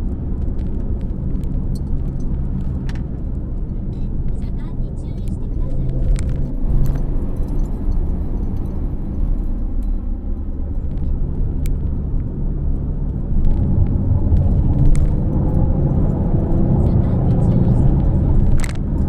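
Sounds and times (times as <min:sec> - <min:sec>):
car engine low rumble: 0:00.0 - 0:19.0.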